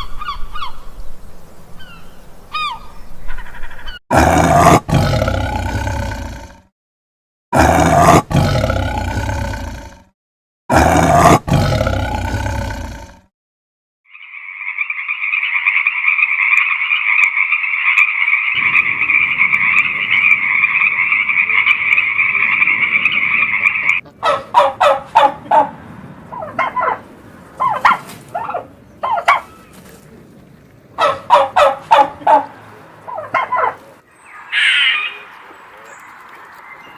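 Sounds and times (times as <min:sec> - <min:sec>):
rapid-fire animal calls: 0:14.6 - 0:25.7
loud animal calls: 0:14.7 - 0:25.7, 0:31.0 - 0:35.3.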